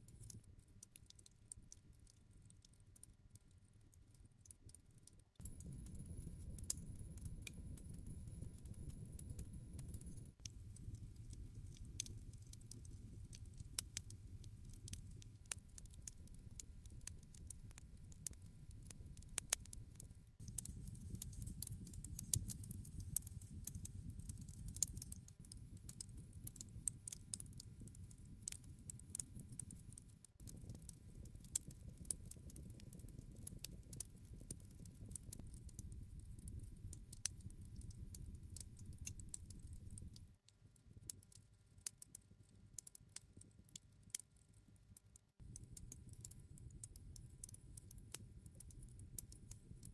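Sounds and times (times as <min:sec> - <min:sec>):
low rumble of flame: 0:05.4 - 0:40.4.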